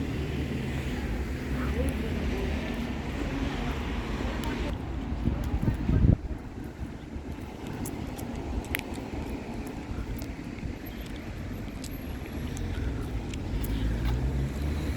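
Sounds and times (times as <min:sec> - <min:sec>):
steady low rumble: 0:00.0 - 0:14.3.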